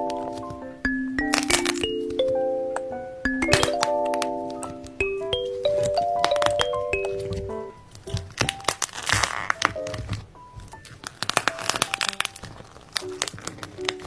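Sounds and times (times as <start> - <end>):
background music: 0.0 - 14.0
crinkling handling noises: 3.6 - 14.0.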